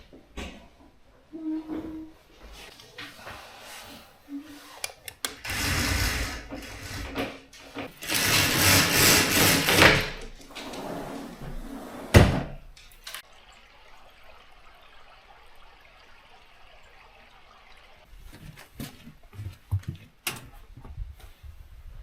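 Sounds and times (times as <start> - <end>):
clicks: 4.8 - 5.6.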